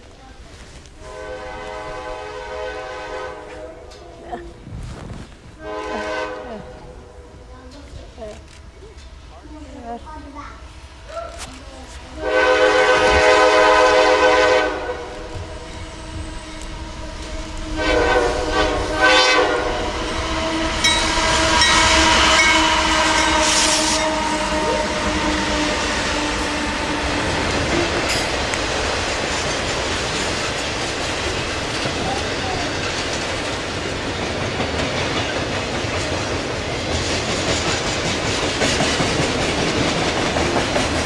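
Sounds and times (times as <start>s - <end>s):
diesel locomotives passing: 0.0s - 4.7s, 5.3s - 41.0s
train horn blasts: 1.0s - 4.0s, 5.6s - 7.2s, 12.2s - 27.6s
train cars clattering on rails: 12.2s - 41.0s.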